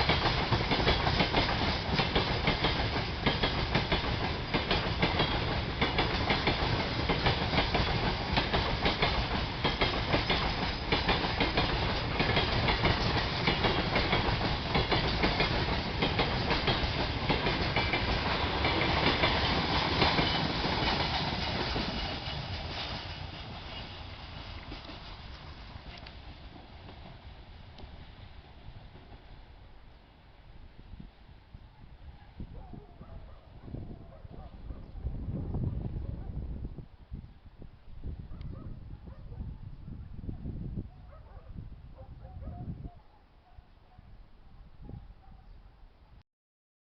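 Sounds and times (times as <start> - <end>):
train wheels clattering: 0.0 - 29.3.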